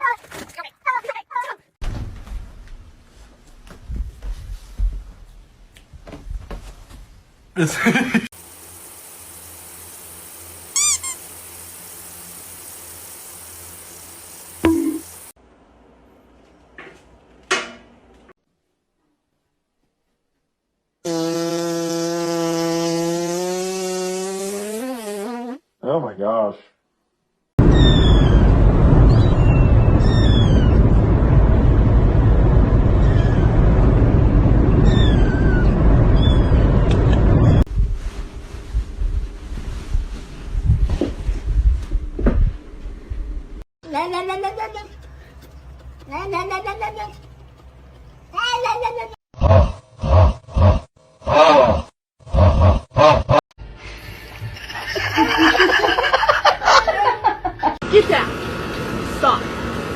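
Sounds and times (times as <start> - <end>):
loud steady low rumbling: 27.6 - 43.6.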